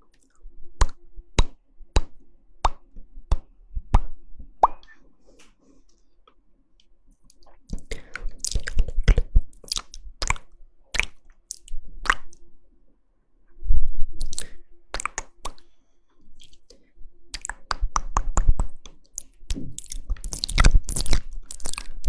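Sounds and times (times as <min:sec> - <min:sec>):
wet mouth clicks and smacks: 0:07.2 - 0:12.4, 0:14.2 - 0:15.7, 0:16.4 - 0:22.0.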